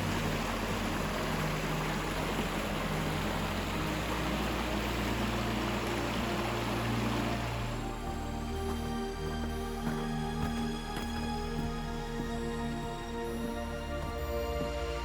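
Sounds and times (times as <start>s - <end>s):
waterfall rushing: 0.0s - 10.0s
low sustained notes: 0.0s - 15.0s.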